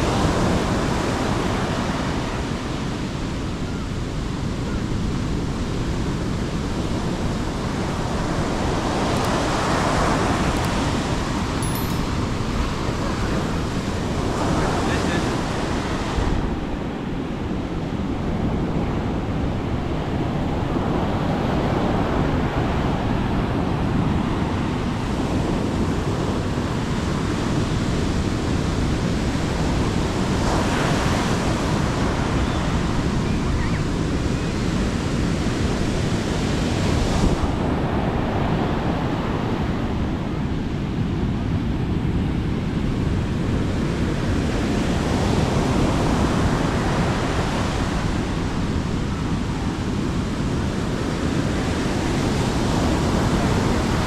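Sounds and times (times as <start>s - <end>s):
wind noise on microphone: 0.0s - 54.0s
sea waves breaking on beach: 43.1s - 54.0s.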